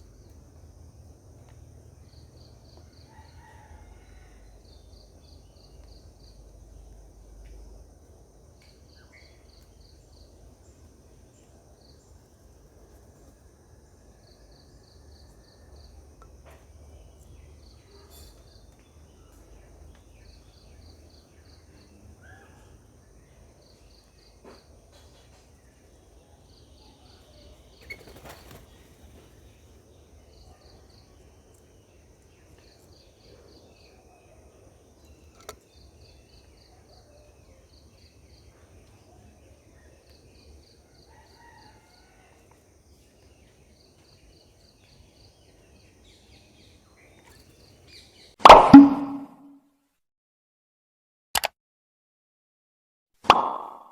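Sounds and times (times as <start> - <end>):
faint bird chirps: 14.1 - 49.3
insect chirping trills: 25.7 - 31.2.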